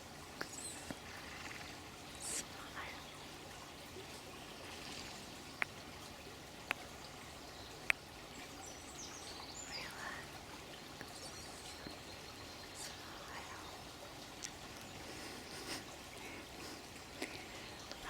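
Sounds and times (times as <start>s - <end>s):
water running like a stream: 0.0s - 18.0s
faint bird chirps: 11.0s - 13.9s.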